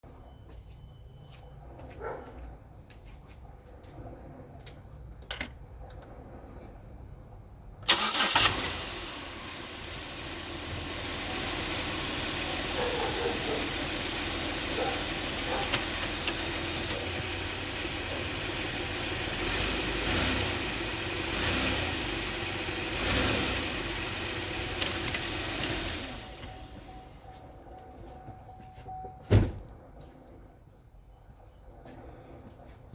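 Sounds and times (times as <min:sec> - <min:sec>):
car engine starting: 0:07.8 - 0:27.2
car engine idling: 0:07.9 - 0:27.2.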